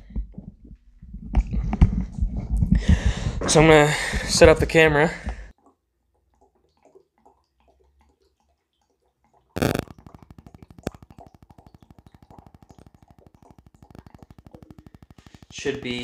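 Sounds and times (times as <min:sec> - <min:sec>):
fuel glugging into a tank: 0:05.6 - 0:15.6.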